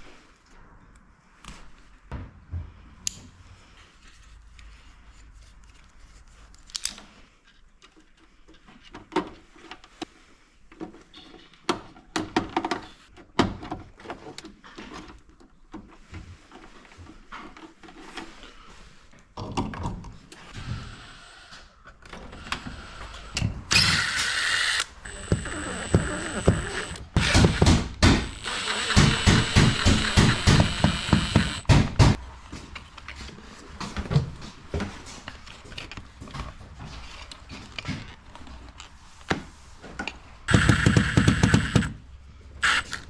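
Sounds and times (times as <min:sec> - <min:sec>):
knocks and clanks of hand tools: 0:25.0 - 0:32.2, 0:40.5 - 0:42.0.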